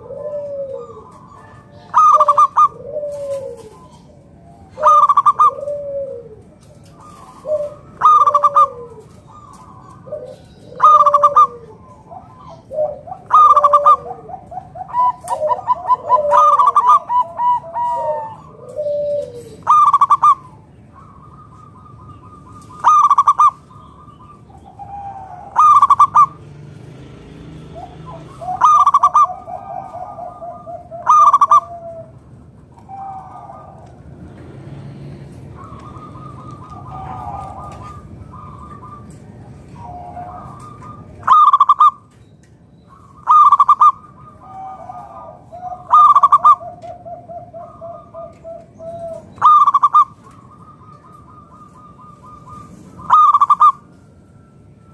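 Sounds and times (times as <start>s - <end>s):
dove cooing: 0.0s - 42.2s, 42.8s - 54.9s.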